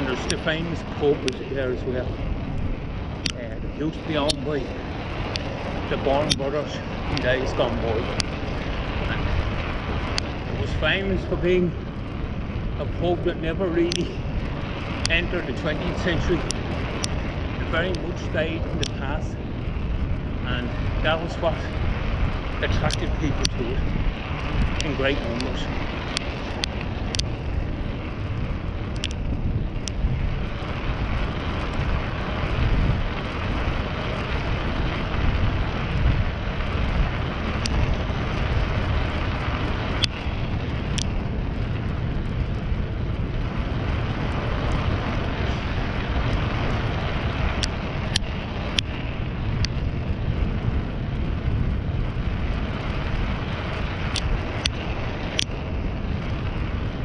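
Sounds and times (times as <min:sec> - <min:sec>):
road noise: 0:00.0 - 0:57.0
wind on microphone: 0:00.0 - 0:57.0
sharp clicks: 0:04.0 - 0:09.2, 0:13.9 - 0:14.1, 0:18.6 - 0:19.0, 0:28.9 - 0:30.0, 0:53.7 - 0:55.6.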